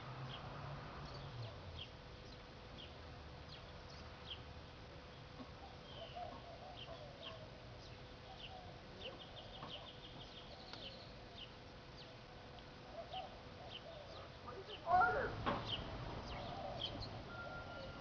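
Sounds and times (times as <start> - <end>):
faint steady hum: 0.0 - 18.0
bird chirps and trills: 5.1 - 12.2, 12.9 - 18.0.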